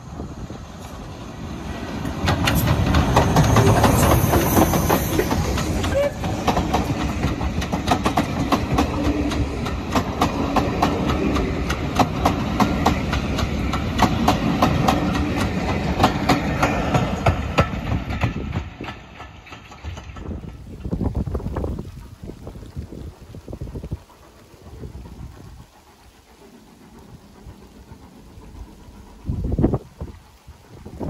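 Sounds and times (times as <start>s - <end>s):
train rumbling past: 0.0s - 31.0s.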